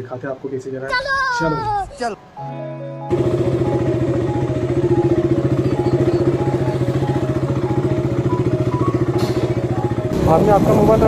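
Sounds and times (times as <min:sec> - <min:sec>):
motorcycle engine running: 0:03.1 - 0:11.0.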